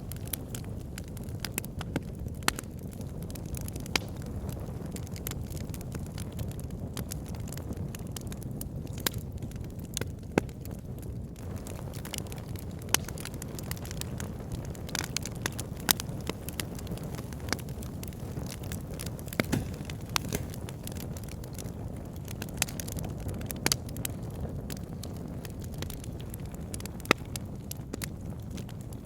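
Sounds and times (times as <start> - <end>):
wood fire burning in log burner: 0.0 - 29.0.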